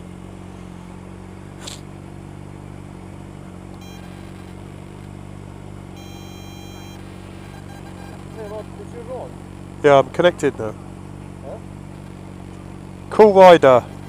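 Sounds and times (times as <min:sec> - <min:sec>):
motorcycle engine idling: 0:00.0 - 0:14.0
electronic beep tones: 0:03.8 - 0:05.0, 0:05.9 - 0:09.8.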